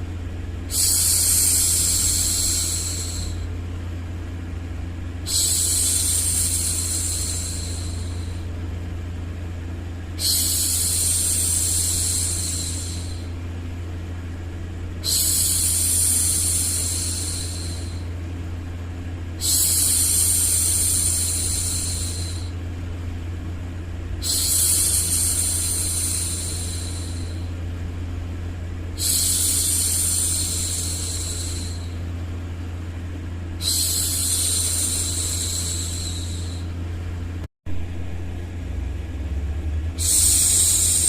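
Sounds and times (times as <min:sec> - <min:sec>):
low hum: 0:00.0 - 0:41.0
white noise: 0:00.0 - 0:41.0
woman hushing shhh: 0:00.7 - 0:03.5, 0:05.2 - 0:08.5, 0:10.2 - 0:13.4, 0:15.0 - 0:18.1, 0:19.4 - 0:22.6, 0:24.2 - 0:27.6, 0:29.0 - 0:32.1, 0:33.6 - 0:36.8, 0:40.0 - 0:41.0.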